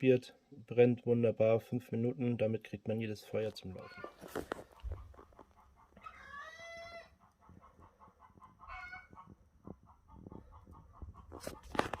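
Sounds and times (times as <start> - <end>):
faint animal calls: 3.8 - 9.3.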